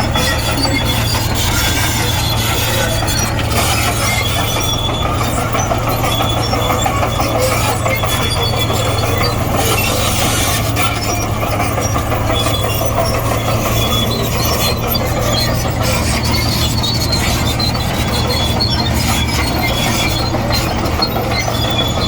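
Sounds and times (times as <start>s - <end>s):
diesel engine running: 0.0s - 22.0s
steel tracks grinding and squeaking: 0.0s - 22.0s.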